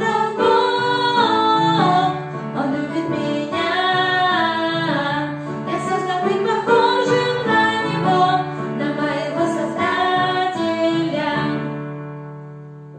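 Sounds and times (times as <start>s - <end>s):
woman singing: 0.0s - 11.8s.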